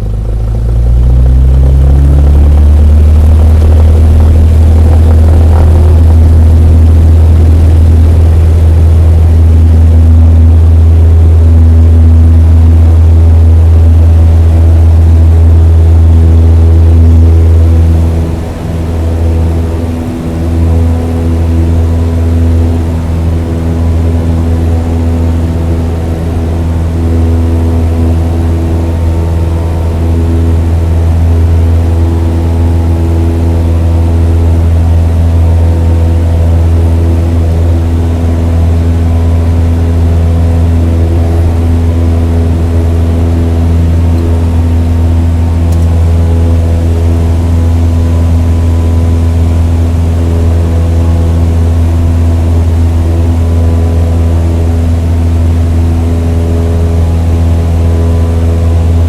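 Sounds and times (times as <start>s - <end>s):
engine droning with steady tones: 0.0s - 59.0s.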